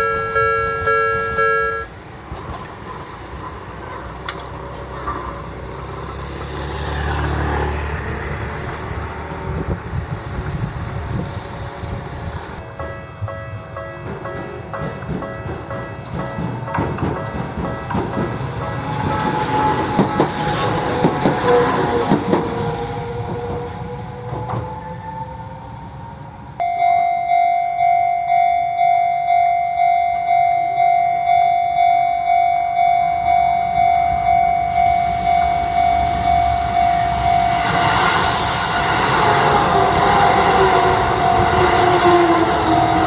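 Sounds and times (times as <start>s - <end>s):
level crossing alarm bell dinging: 0.0s - 1.9s, 26.6s - 37.8s
train wheels clicking over rail joints: 2.2s - 12.6s, 14.0s - 25.2s
train falling whine: 16.8s - 26.9s, 31.4s - 43.0s.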